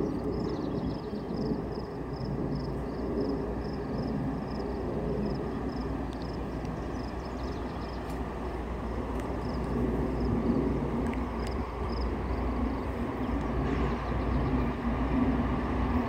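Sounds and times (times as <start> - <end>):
distant diesel locomotives rumbling: 0.0 - 16.0.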